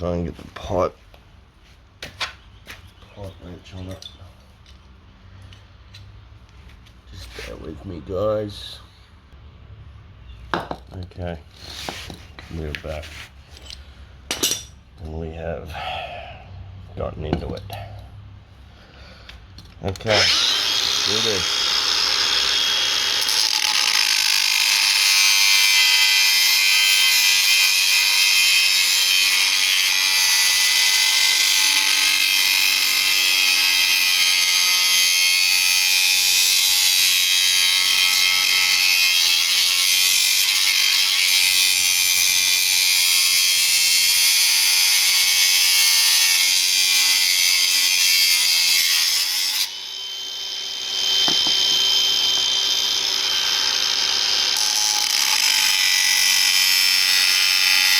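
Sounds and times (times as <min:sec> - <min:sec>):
handheld power tool running: 0:20.1 - 0:34.0, 0:48.2 - 0:57.9.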